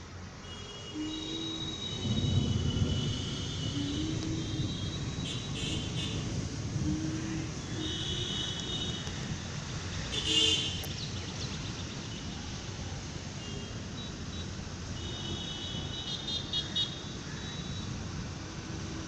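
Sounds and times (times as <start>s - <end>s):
road traffic: 0.0s - 19.0s
vehicle horn toots: 0.4s - 6.3s, 6.9s - 9.1s, 10.2s - 10.8s.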